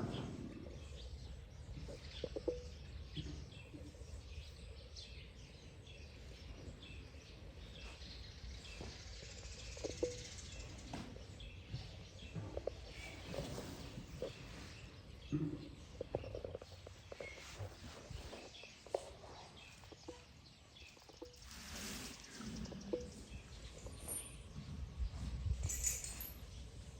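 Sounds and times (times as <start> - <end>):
faint bird chirps: 15.3 - 25.4.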